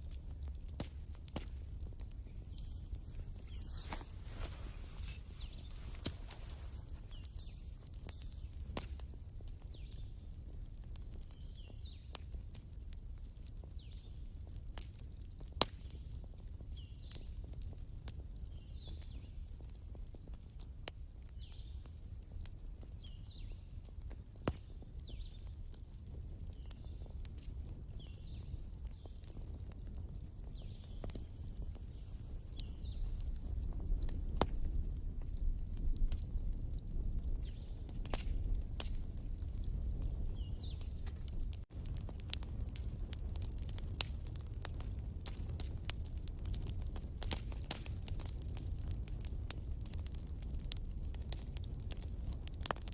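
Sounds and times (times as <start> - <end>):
wood fire crackling and popping: 0.0 - 52.9.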